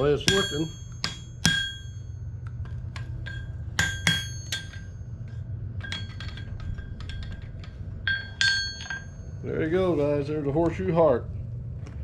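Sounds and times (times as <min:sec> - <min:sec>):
hammer ringing on anvil: 0:00.0 - 0:02.5, 0:03.2 - 0:07.3, 0:08.0 - 0:09.9
steady low hum: 0:00.0 - 0:12.0.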